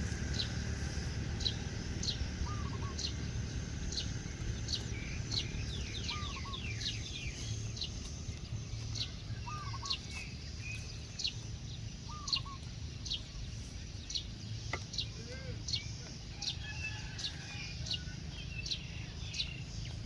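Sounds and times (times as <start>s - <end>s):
steady low rumble: 0.0s - 15.1s
birds chirping: 0.0s - 20.0s.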